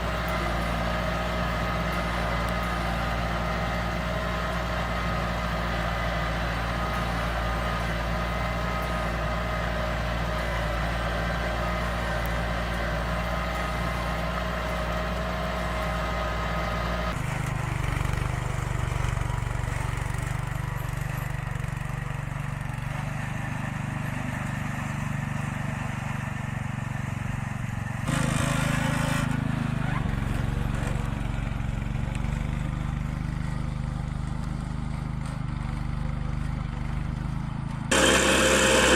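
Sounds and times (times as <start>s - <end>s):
tractor engines running: 0.0s - 38.9s.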